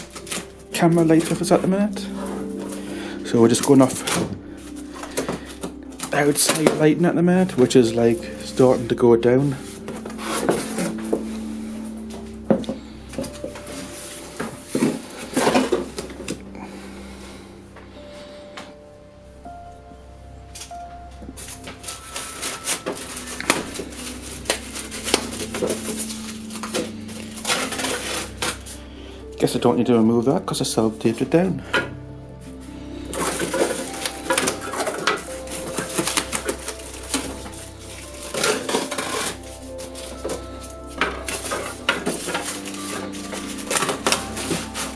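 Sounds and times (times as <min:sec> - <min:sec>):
packaging knocks and clatter: 0:00.0 - 0:11.3, 0:12.5 - 0:16.5, 0:21.4 - 0:28.7, 0:33.0 - 0:44.9
packaging rustling: 0:00.0 - 0:17.4, 0:20.6 - 0:29.4, 0:31.8 - 0:44.9.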